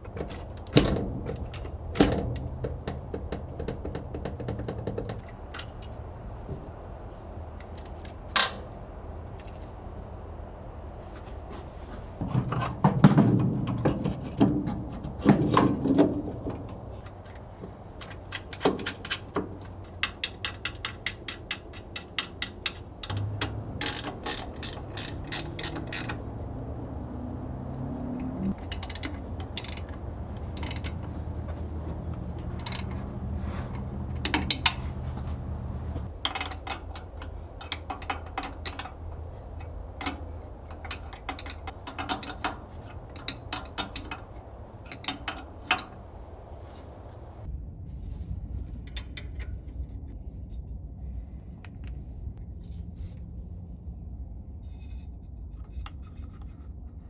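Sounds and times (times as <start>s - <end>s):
low steady hum: 0.0s - 47.5s
metal clunks: 0.0s - 47.5s
ratchet wrench clicking: 16.8s - 27.0s, 28.5s - 47.4s.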